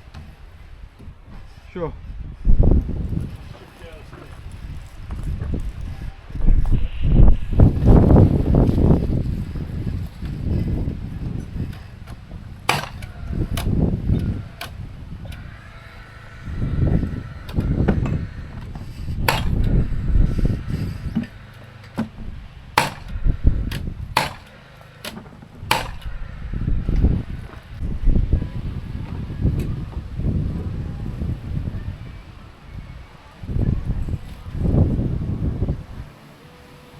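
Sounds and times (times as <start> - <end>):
wind rumbling on microphone: 0.0 - 24.5, 25.2 - 36.9
hammer striking timber: 11.7 - 15.4, 17.4 - 19.8, 20.8 - 26.1.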